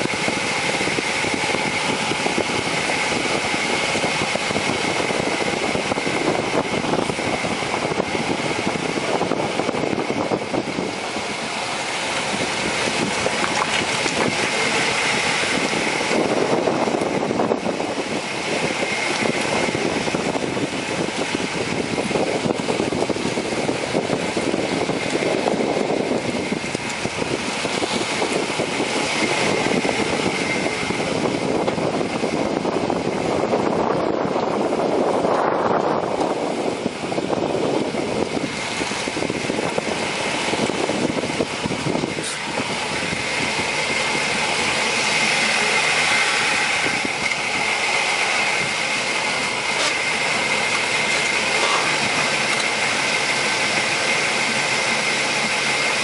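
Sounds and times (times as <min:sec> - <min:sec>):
tyre wind and drivetrain rush: 0:00.0 - 0:56.0.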